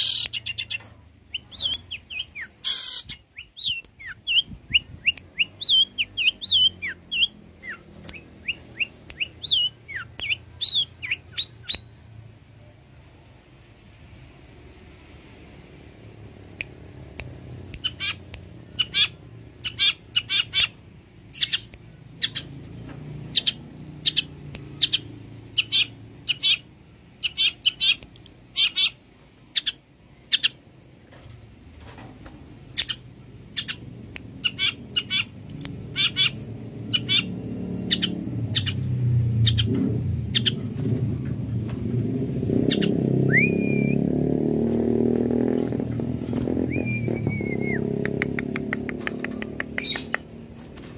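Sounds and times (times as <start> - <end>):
low background rumble: 45.7 - 48.8.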